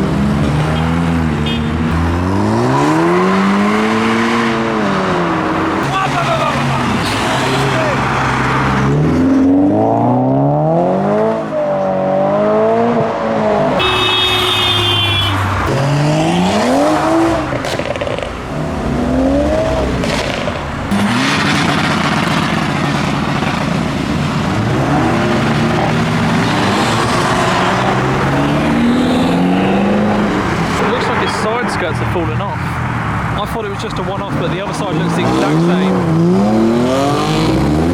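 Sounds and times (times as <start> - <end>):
car engines revving: 0.0 - 37.9.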